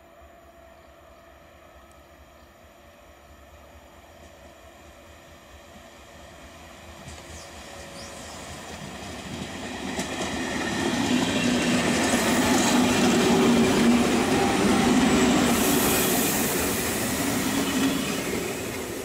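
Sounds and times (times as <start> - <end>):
train wheels rumbling: 4.1 - 19.0
high hiss: 11.9 - 19.0.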